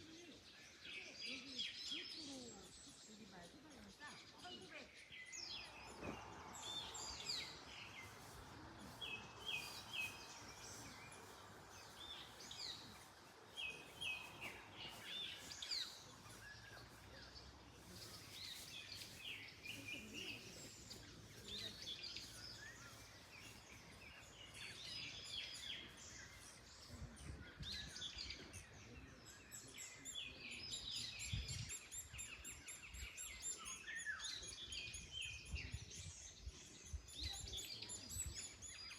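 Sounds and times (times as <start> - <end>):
wild birds chirping and singing: 0.0 - 38.9
wind in the trees: 4.2 - 38.9.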